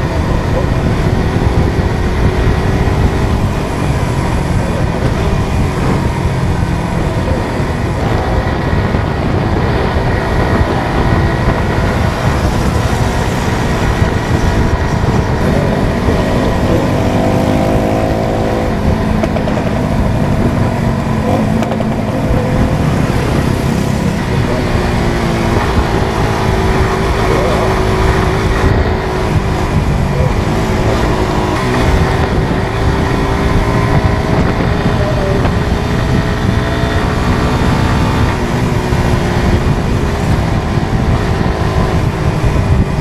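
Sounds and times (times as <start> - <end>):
motorcycle engine accelerating: 0.0 - 43.0
wind noise: 0.0 - 43.0.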